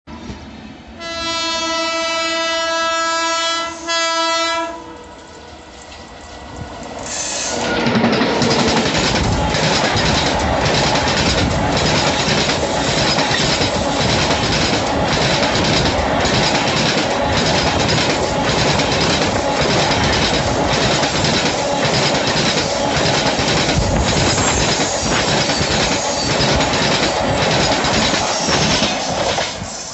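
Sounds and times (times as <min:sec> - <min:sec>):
train horn blasts: 0:01.0 - 0:06.1
train rolling: 0:04.8 - 0:29.9.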